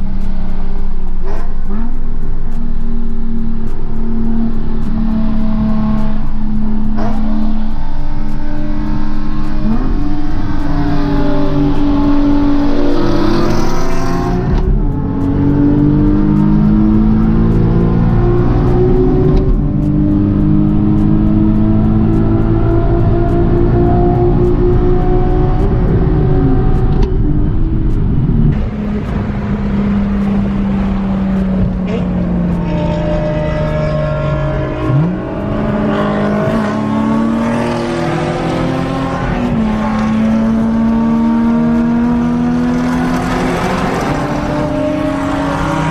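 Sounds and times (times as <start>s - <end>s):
car engine changing gear: 0.0s - 45.9s.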